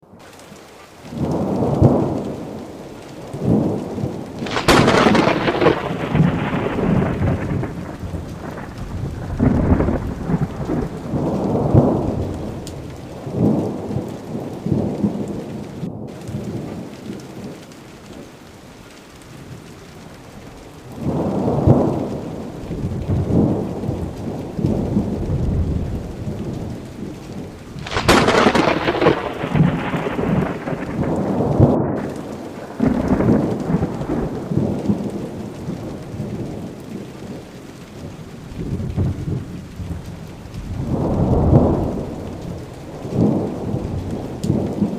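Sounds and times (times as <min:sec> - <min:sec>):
steady rain: 0:00.0 - 0:44.9
thunder rumbling: 0:00.2 - 0:44.9
sharp thunder crack: 0:03.4 - 0:14.0, 0:27.7 - 0:35.0.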